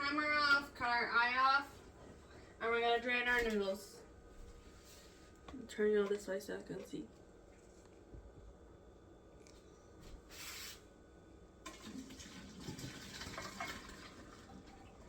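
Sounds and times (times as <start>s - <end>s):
short hiss: 10.3s - 10.9s
water pouring into a colander: 11.6s - 15.0s.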